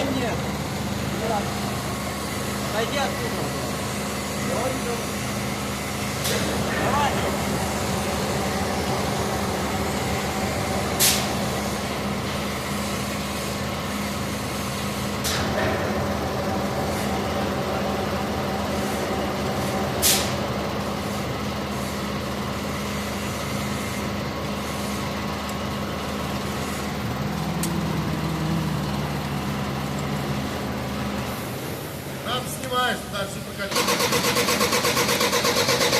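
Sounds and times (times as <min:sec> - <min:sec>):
diesel truck engine running: 0:00.0 - 0:35.9
sharp air hisses: 0:11.0 - 0:11.9, 0:20.0 - 0:20.4
low tone: 0:27.0 - 0:31.3.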